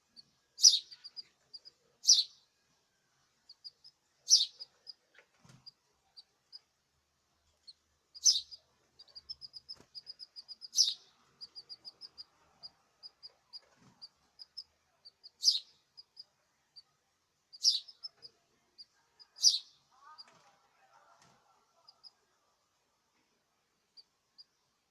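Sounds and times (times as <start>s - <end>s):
songbird chirping rapidly: 0.1s - 2.5s, 3.4s - 5.1s, 7.6s - 20.3s
loud sharp bird calls: 0.6s - 1.1s, 2.0s - 2.4s, 4.3s - 4.6s, 8.2s - 8.6s, 9.5s - 12.2s, 15.4s - 15.7s, 17.6s - 18.1s, 19.4s - 19.7s.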